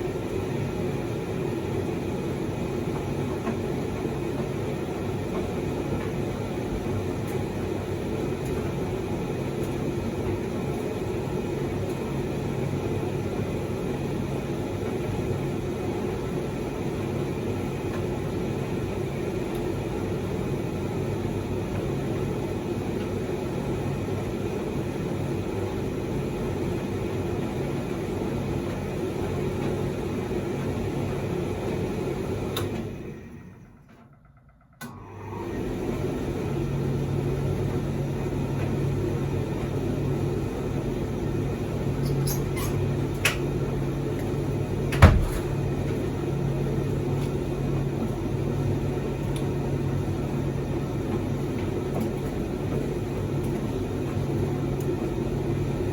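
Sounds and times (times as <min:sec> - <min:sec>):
tumble dryer motor humming: 0:00.0 - 0:55.9
dryer click: 0:44.1 - 0:46.1.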